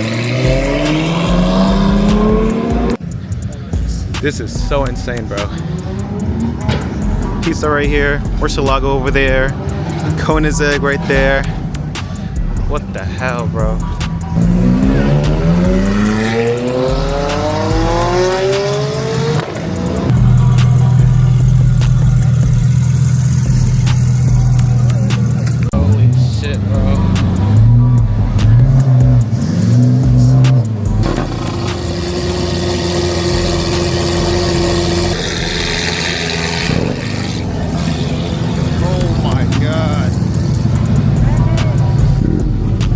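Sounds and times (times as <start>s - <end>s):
car engine accelerating hard: 0.0s - 42.9s.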